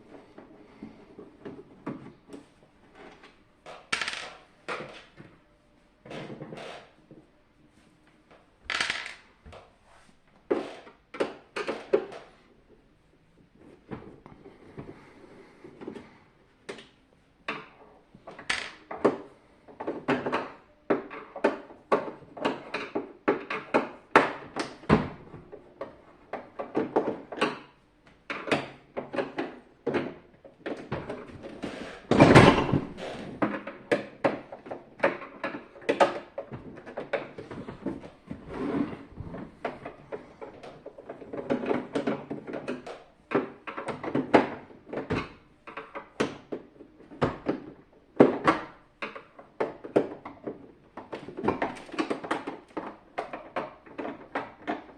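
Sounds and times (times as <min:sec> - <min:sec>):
plastic parts clicking and scraping: 0:28.3 - 0:54.9.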